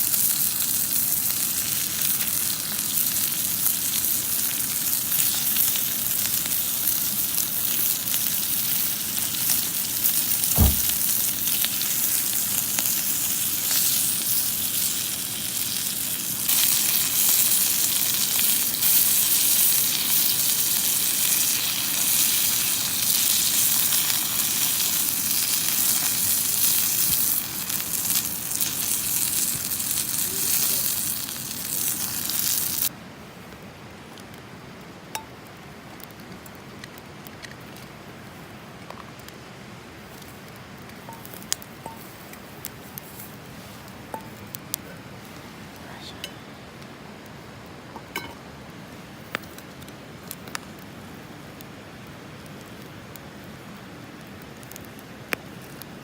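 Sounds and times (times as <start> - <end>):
food sizzling in a hot pan: 0.0 - 32.9.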